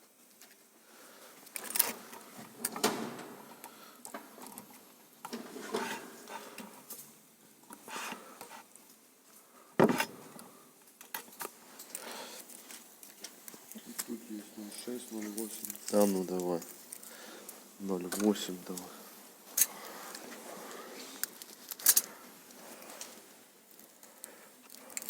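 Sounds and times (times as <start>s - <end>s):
metal tools clicking and clinking: 21.2s - 22.2s.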